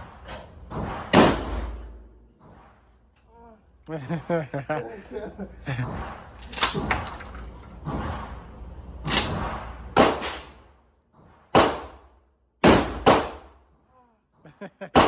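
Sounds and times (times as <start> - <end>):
gunshots: 0.9 - 2.0, 9.2 - 10.6, 11.5 - 13.6.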